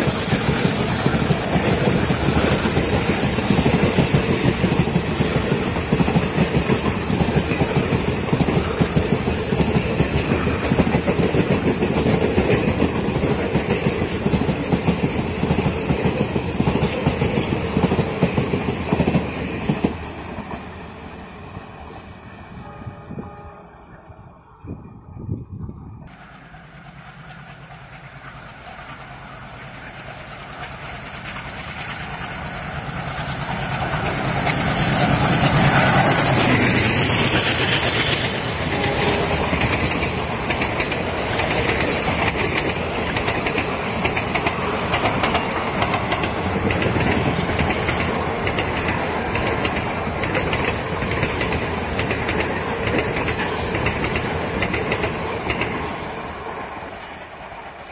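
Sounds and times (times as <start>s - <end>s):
diesel locomotive engines: 0.0s - 57.9s
train coaches rumbling past: 0.0s - 57.9s
wheels clacking over rail joints: 26.1s - 57.9s.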